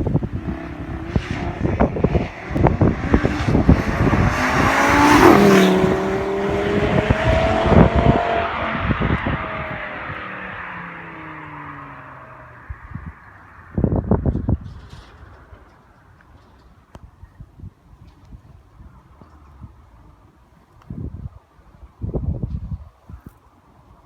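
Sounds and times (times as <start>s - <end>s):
car engine accelerating past: 0.0s - 14.4s
wind buffeting microphone: 0.0s - 24.0s.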